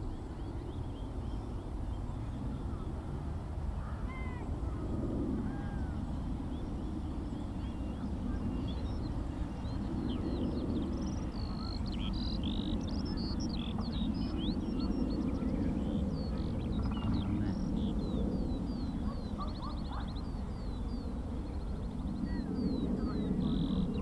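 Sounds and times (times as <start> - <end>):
steady low rumble: 0.0 - 24.0
skylark song: 5.5 - 24.0.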